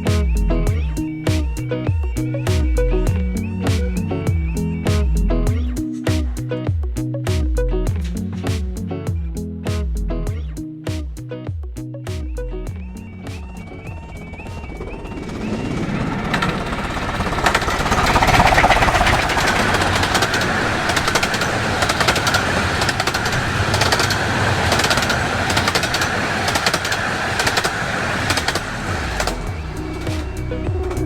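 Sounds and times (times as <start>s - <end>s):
wheels clicking: 12.7s - 31.0s
steam train passing: 12.8s - 31.0s.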